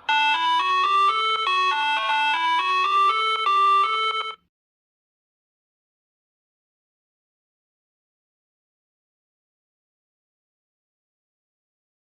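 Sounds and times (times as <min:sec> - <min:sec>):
electronic ringtone jingle: 0:00.0 - 0:04.4.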